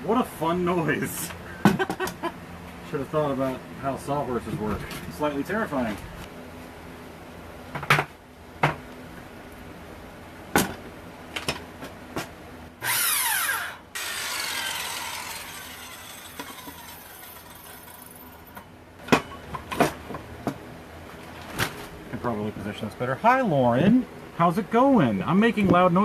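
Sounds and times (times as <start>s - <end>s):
circular saw winding down: 12.8s - 18.4s.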